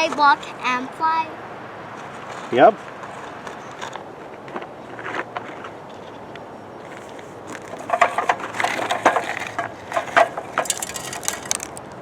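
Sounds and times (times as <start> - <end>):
digging in dirt and rocks: 6.9 - 12.0.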